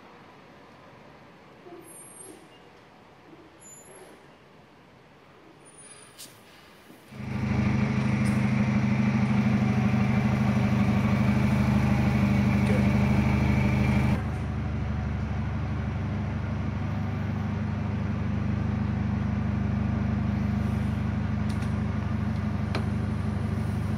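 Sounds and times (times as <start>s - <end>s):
vehicle engine running: 7.1s - 23.9s.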